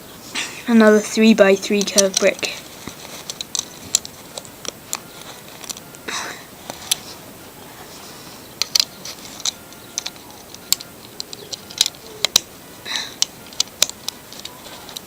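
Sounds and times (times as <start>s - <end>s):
plastic bricks clicking: 1.7s - 5.8s, 8.6s - 15.0s.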